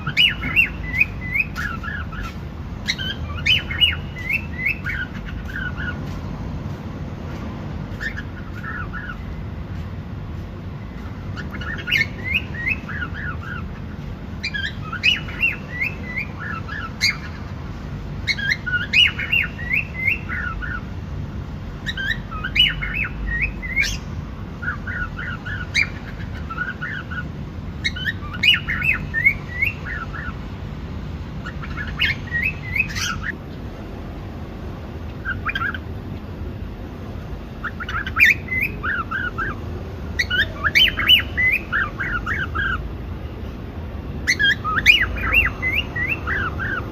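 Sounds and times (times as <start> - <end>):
cockatiel chirping: 0.0 - 6.0, 7.9 - 9.2, 11.4 - 17.4, 18.2 - 20.8, 21.8 - 30.4, 31.4 - 33.4, 35.2 - 35.9, 37.6 - 39.6, 40.2 - 42.8, 44.2 - 46.9.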